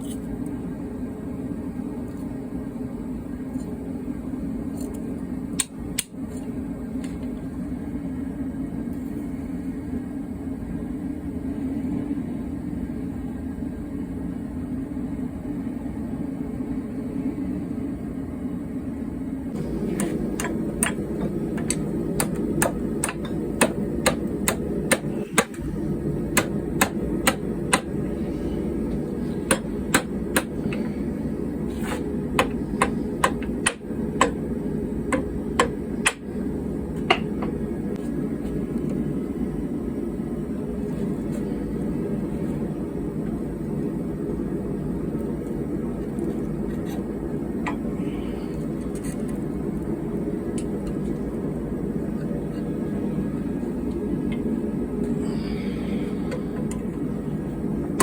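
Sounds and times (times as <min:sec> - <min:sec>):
hammer striking steel on anvil: 0:19.9 - 0:25.6, 0:26.3 - 0:28.0, 0:29.4 - 0:30.9, 0:32.4 - 0:34.4.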